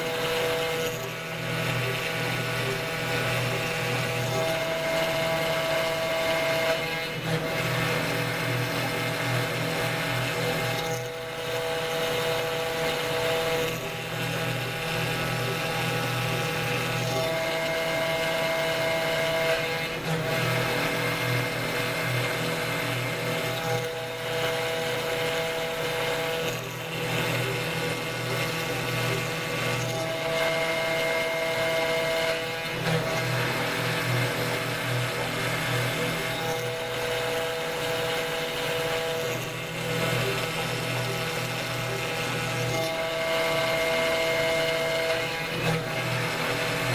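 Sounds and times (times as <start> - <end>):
router spindle whine: 0.0 - 46.9.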